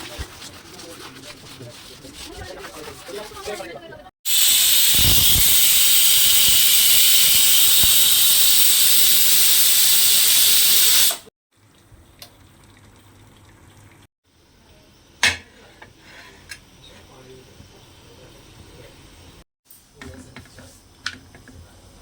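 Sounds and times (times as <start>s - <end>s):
rushing water or steam hissing: 4.3s - 11.3s.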